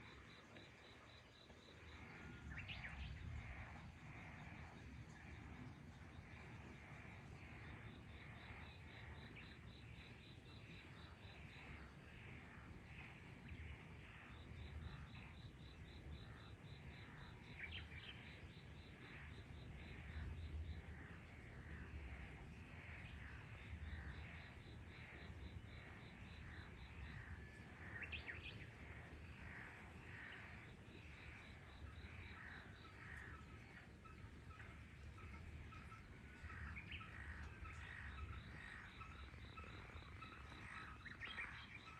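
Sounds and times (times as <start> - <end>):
frogs croaking: 0.0 - 41.9.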